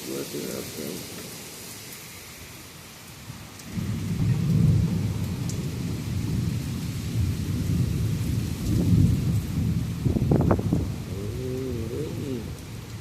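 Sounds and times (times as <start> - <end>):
heavy rain: 0.0 - 13.0
sharp thunder cracks: 3.7 - 11.1
thunder rumbling: 3.7 - 13.0.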